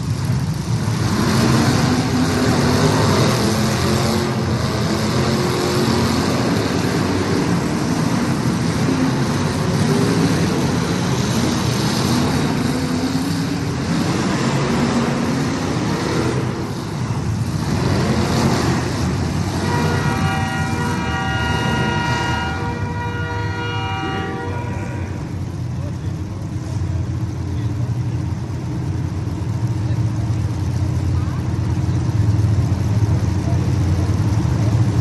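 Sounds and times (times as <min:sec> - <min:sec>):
race car engines revving: 0:00.0 - 0:35.0
loud multi-tone horn: 0:18.2 - 0:25.5.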